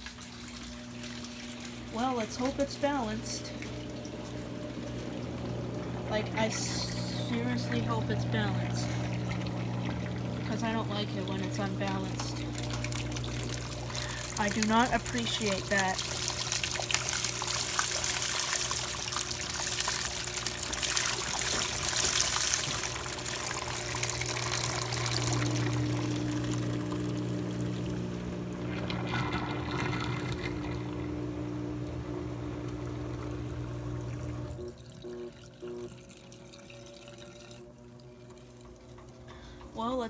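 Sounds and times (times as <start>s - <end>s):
drain pump hum: 0.0s - 40.0s
water rushing out: 5.5s - 31.8s.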